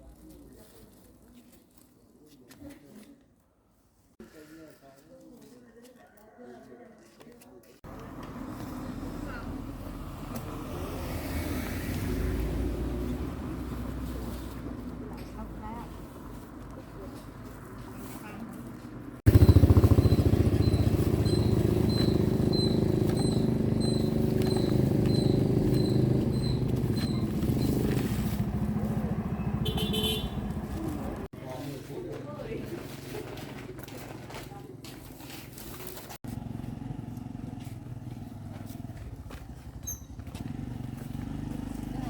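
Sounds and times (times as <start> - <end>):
small motorbike engine running: 19.3 - 31.3, 36.2 - 42.0.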